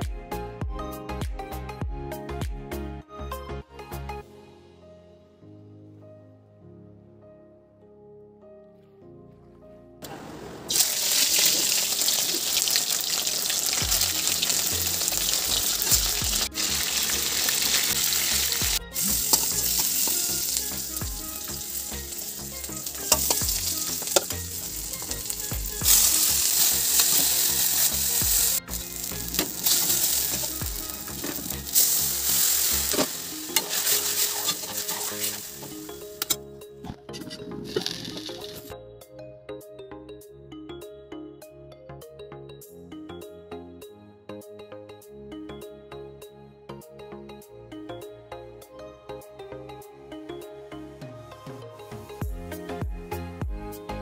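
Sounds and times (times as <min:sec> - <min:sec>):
food sizzling in hot oil: 0:10.7 - 0:36.4
spatula stirring: 0:10.8 - 0:36.4, 0:37.2 - 0:38.7.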